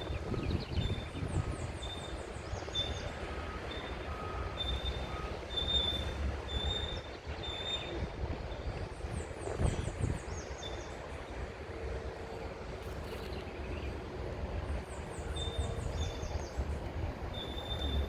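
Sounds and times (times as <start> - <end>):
wind rumble on microphone: 0.0 - 3.3, 6.1 - 18.0.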